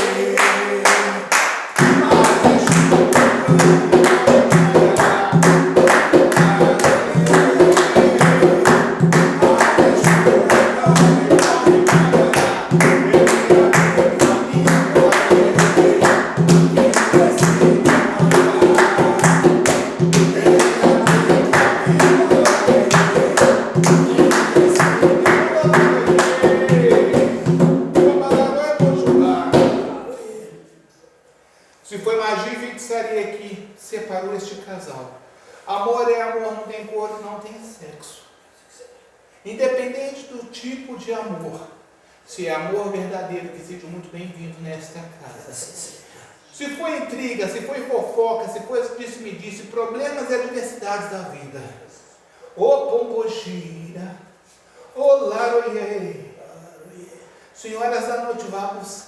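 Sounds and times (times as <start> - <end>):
hand clapping: 0.0 - 29.9
percussion beat: 0.0 - 30.2
group singing a chant: 0.0 - 30.9.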